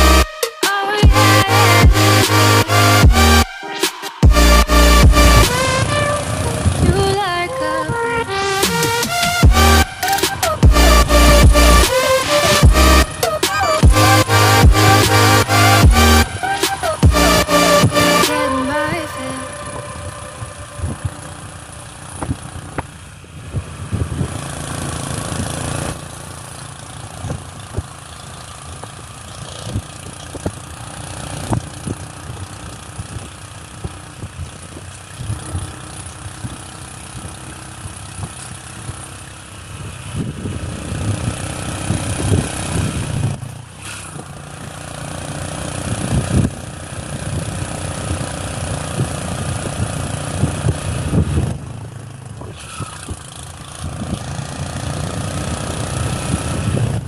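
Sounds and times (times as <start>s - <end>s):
motorcycle engine running: 0.0s - 57.0s
rushing noise: 7.8s - 22.6s.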